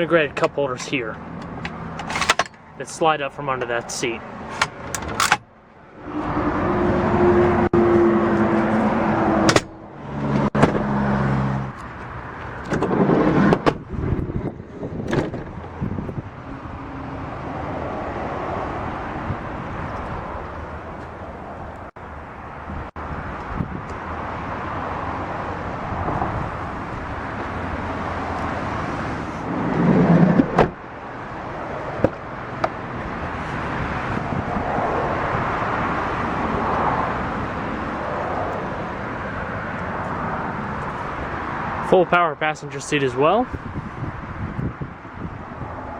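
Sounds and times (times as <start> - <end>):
clicks and clunks of van doors: 4.4 - 5.5, 9.4 - 10.9, 11.7 - 13.9, 15.0 - 16.0, 30.2 - 30.8, 32.0 - 32.8.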